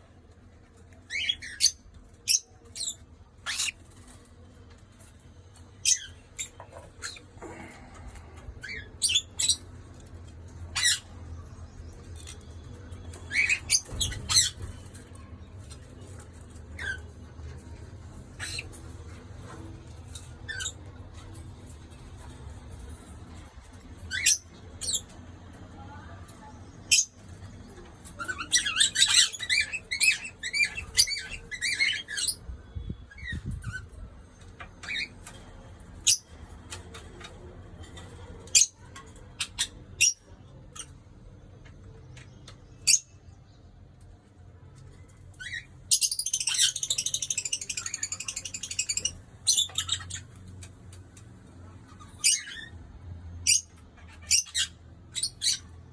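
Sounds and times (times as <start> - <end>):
parrots chattering rapidly: 45.4 - 50.4, 53.4 - 55.8
parrots screeching: 53.5 - 55.7.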